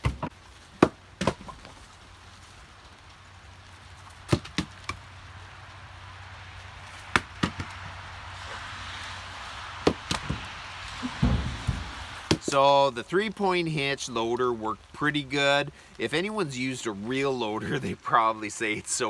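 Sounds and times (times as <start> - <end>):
wooden logs knocking: 0.0 - 2.0, 4.1 - 5.1, 6.8 - 8.6, 9.4 - 12.7
steady hiss: 0.0 - 19.0.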